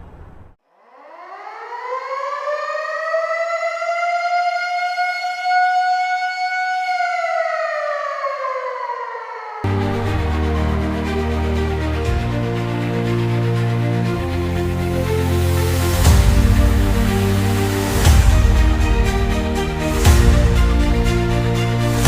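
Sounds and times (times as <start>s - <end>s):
air-raid siren wailing: 0.7s - 22.0s
music: 9.7s - 22.0s.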